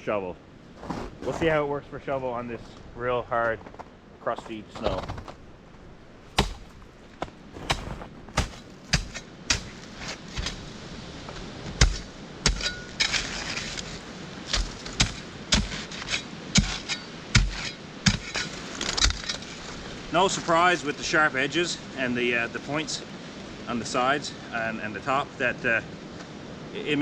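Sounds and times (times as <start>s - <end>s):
shovel scraping snow: 0.8s - 1.6s, 6.3s - 20.8s
shovel chopping into icy snow: 6.3s - 10.8s, 11.7s - 19.8s.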